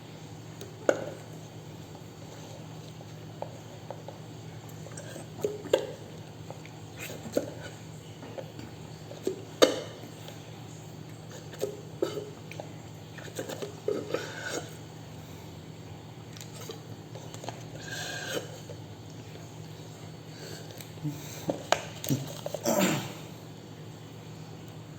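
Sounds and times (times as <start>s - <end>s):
steady low hum: 0.0s - 24.9s
eating and drinking smacks: 20.6s - 23.1s.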